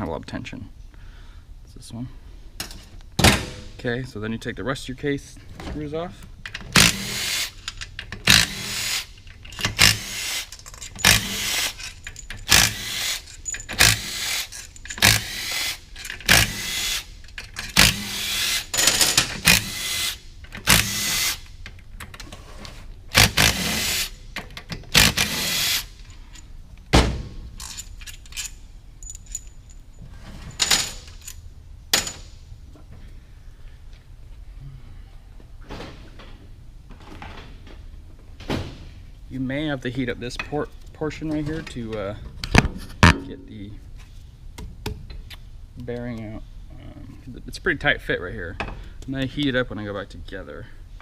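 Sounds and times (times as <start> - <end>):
hand ratchet clicking: 6.5 - 21.4.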